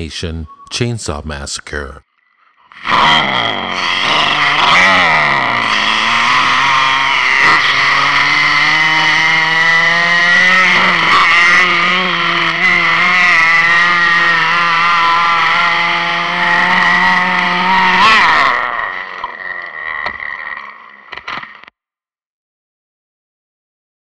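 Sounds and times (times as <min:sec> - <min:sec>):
chainsaw engine at high revs: 0:02.7 - 0:21.7.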